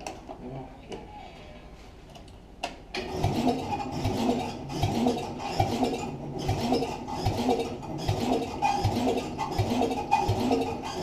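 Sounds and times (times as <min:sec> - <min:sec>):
electric starter cranking engine: 0:03.0 - 0:11.0.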